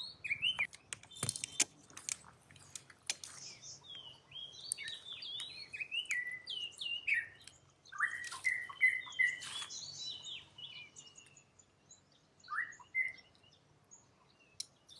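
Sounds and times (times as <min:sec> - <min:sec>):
high-pitched chirping calls: 0:00.0 - 0:01.7, 0:03.3 - 0:11.4.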